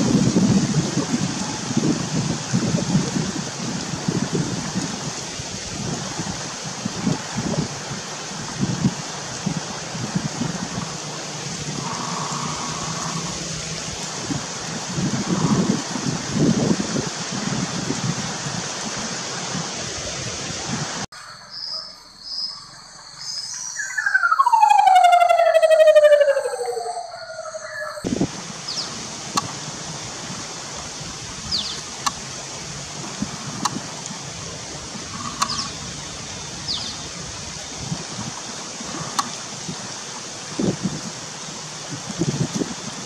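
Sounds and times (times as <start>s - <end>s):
wind buffeting microphone: 0.0s - 21.1s, 25.5s - 43.0s
rushing background noise: 0.0s - 43.0s
loud downward bird whistle: 23.2s - 28.0s.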